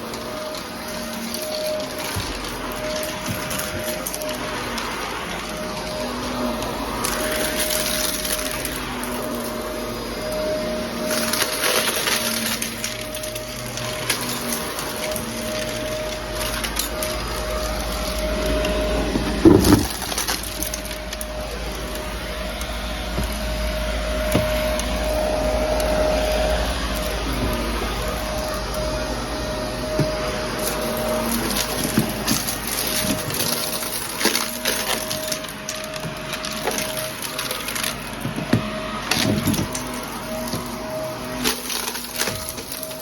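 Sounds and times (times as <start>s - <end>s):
debris crunching in vacuum: 0.0s - 43.0s
vacuum cleaner running: 0.0s - 43.0s
debris clatter: 11.0s - 28.6s, 29.9s - 43.0s.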